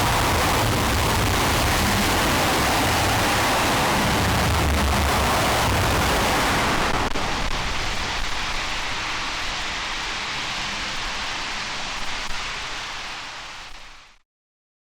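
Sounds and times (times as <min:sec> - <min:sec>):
rocket engine roaring: 0:00.0 - 0:11.5.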